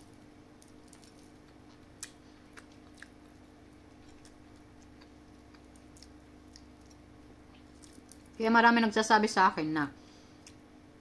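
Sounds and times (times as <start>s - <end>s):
low steady hum: 0.0s - 11.0s
person chewing: 0.6s - 8.4s.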